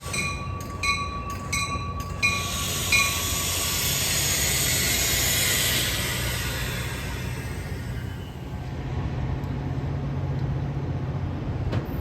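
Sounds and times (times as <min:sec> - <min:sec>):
crossing bell ringing: 0:00.0 - 0:05.5
train wheels on rails: 0:00.0 - 0:12.0.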